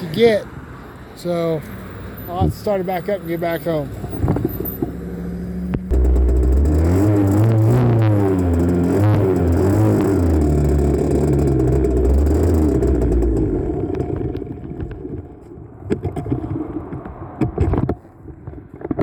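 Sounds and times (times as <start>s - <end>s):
two-stroke engine running: 5.9s - 15.1s.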